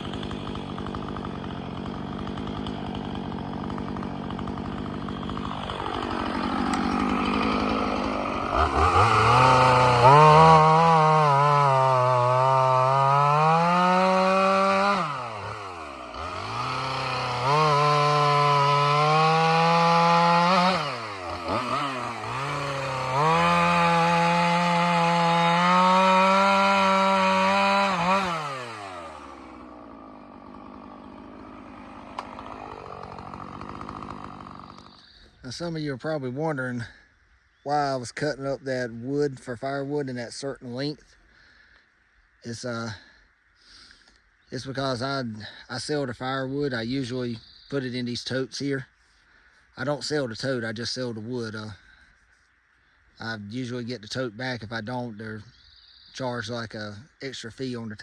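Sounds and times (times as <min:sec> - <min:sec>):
chainsaw cutting wood: 0:00.0 - 0:35.3.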